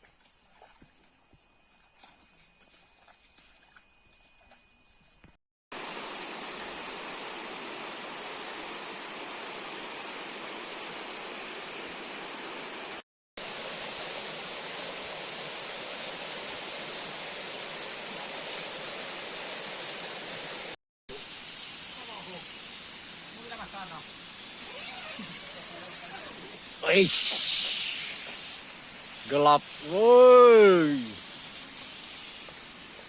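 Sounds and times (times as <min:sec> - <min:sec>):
stream water rushing: 0:05.8 - 0:20.8
high hiss: 0:05.8 - 0:33.0.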